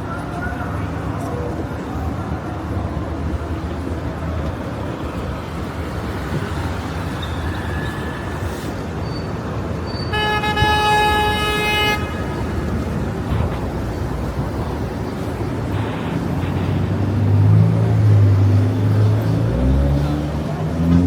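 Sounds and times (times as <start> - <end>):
city street traffic: 0.0 - 21.0
car horn long blast: 10.1 - 12.7.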